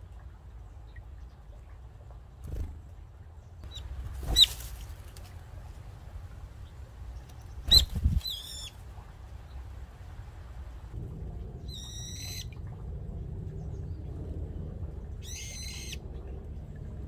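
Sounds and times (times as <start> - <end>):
birds fluttering wings: 2.4 - 2.8, 3.8 - 6.2, 7.2 - 9.0.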